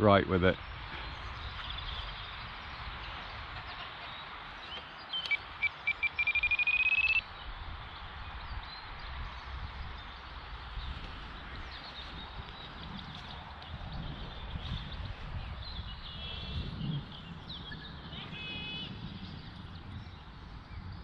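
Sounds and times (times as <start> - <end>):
wind noise on microphone: 0.0 - 21.0
transmitter trim beeps: 5.2 - 7.2.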